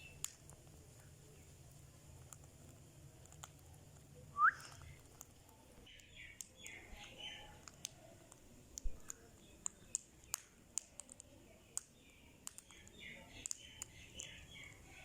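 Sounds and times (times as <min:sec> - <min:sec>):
scratchy bird chatter: 0:00.0 - 0:15.0.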